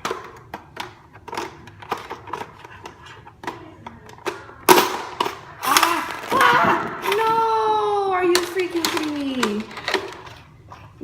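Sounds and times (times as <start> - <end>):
plastic clatter: 8.3 - 10.5.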